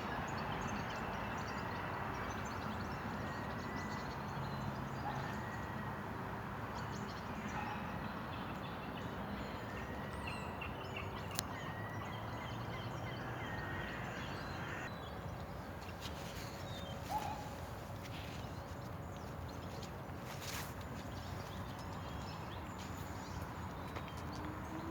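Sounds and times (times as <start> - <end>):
birds calling: 10.3 - 24.9.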